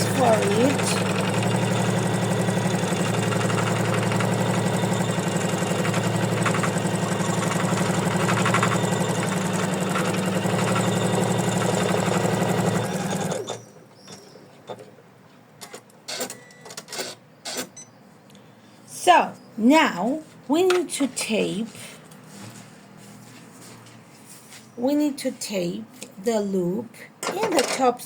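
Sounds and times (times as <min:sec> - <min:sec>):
embroidery machine stitching: 0:00.0 - 0:13.8.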